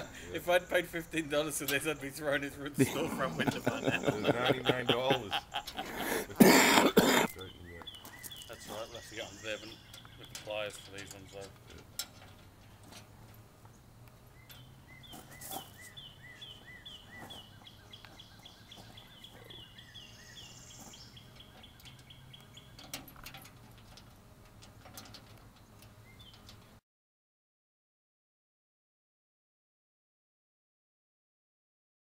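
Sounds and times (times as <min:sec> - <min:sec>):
nuts and bolts clicking on steel: 0:07.8 - 0:14.6, 0:20.9 - 0:26.8.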